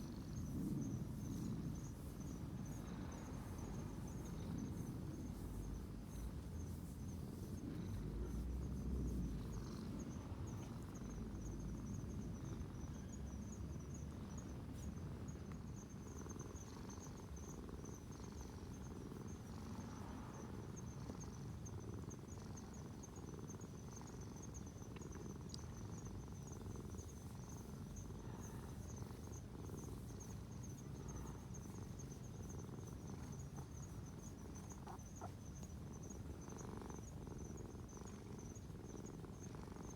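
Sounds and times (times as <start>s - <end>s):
insect trilling: 26.4s - 39.9s.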